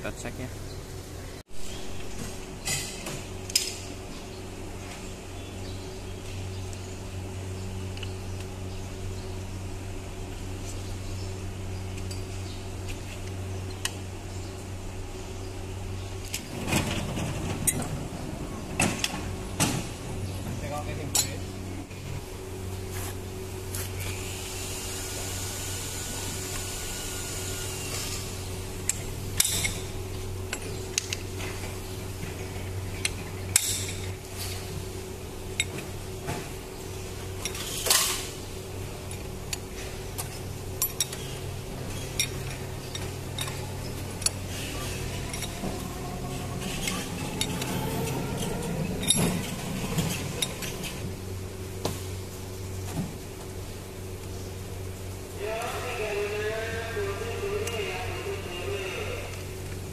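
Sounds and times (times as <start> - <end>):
steady low hum: 0.0 - 59.9
metal tools clinking and scraping: 39.8 - 51.0.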